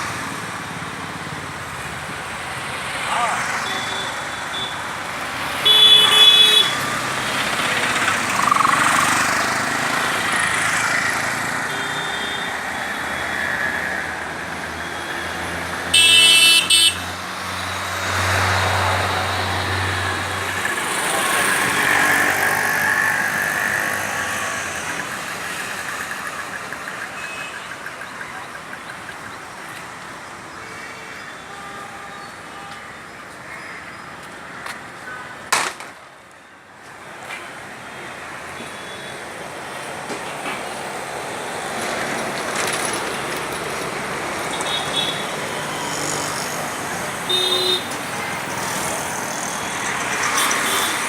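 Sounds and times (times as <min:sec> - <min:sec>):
road traffic passing: 0:00.0 - 0:31.5, 0:32.1 - 0:51.0
vehicle horn honking: 0:05.6 - 0:06.8, 0:16.0 - 0:17.0, 0:47.3 - 0:48.0.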